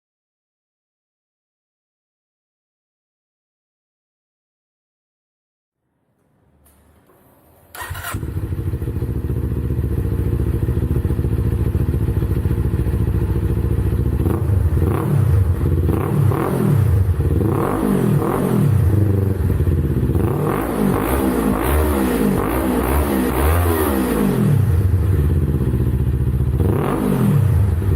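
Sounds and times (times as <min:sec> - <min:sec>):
motorcycle engine idling and revving: 0:07.7 - 0:27.9.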